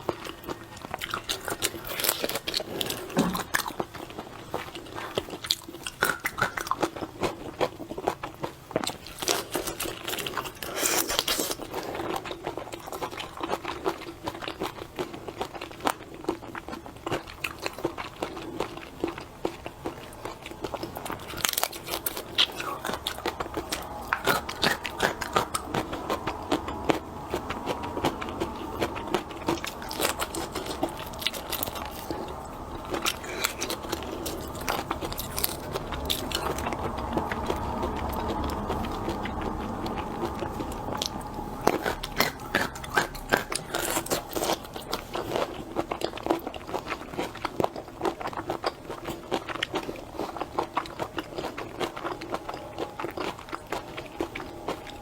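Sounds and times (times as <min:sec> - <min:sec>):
chewing: 0:00.0 - 0:55.0
shellfish shells crunching: 0:17.3 - 0:55.0.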